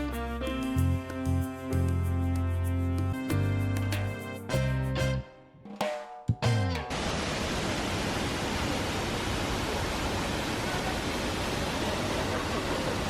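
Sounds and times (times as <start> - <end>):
music with falling tone: 0.0 - 7.0
waterfall rushing: 6.9 - 13.0.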